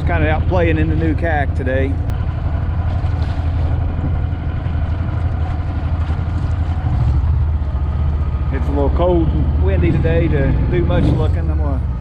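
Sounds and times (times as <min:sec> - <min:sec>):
jet kayak motor running: 0:00.0 - 0:12.0
water noise: 0:00.0 - 0:12.0
wind: 0:00.0 - 0:12.0.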